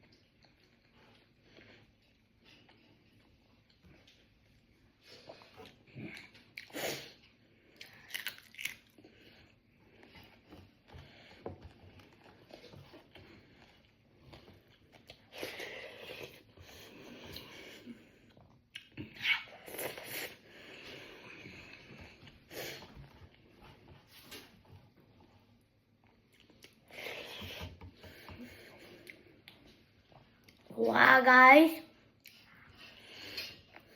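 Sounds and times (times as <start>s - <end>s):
person chewing food: 0.0s - 30.6s
crunching and mouth noise: 5.3s - 9.1s.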